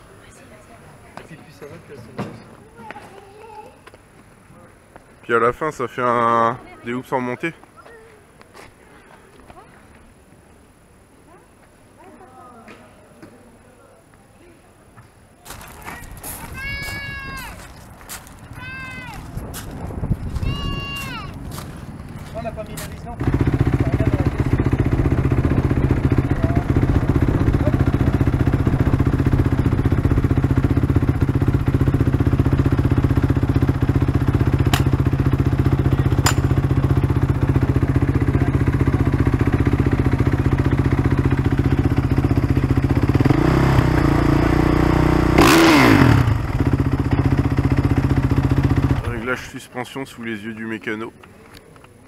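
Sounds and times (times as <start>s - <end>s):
motorbike engine idling: 22.5s - 49.3s.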